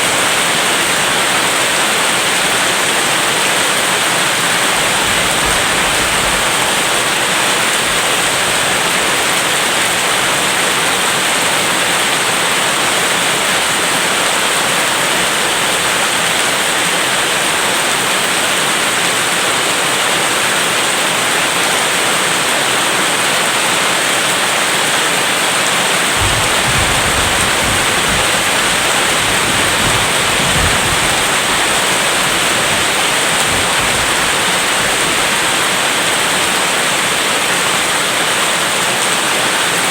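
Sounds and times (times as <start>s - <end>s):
heavy rain hissing: 0.0s - 39.9s
distant thunder rumbling: 26.0s - 35.8s.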